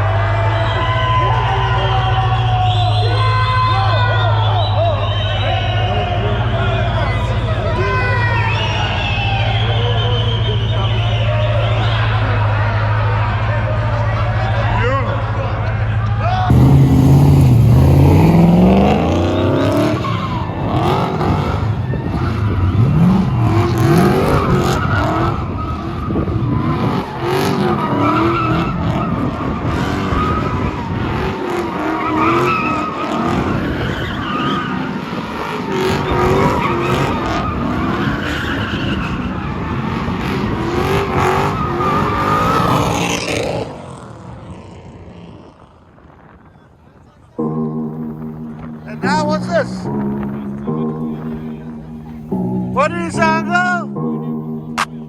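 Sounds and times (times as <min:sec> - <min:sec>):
car engine revving hard: 0:16.4 - 0:45.7
tyres squealing: 0:16.5 - 0:43.9.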